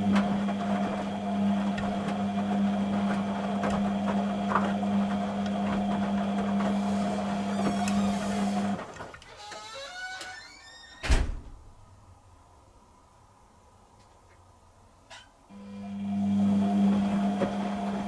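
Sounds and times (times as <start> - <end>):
washing machine hum: 0.0 - 9.3, 15.5 - 18.0.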